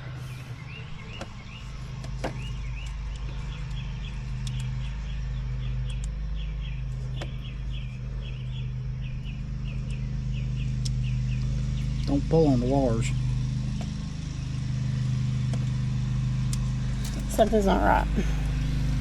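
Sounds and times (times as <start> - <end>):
low engine hum: 0.0 - 19.0
light clicks: 2.0 - 4.8.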